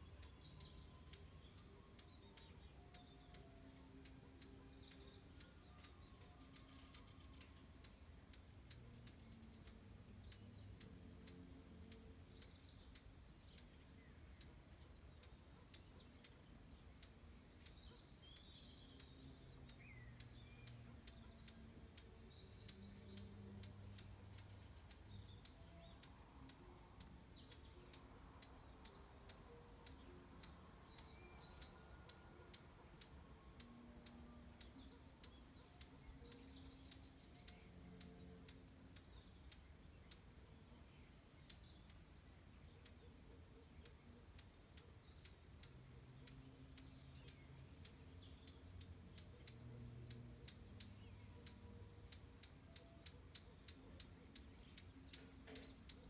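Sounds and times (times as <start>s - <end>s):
small birds chirping: 0.0s - 56.0s
soft clicks: 43.8s - 56.0s.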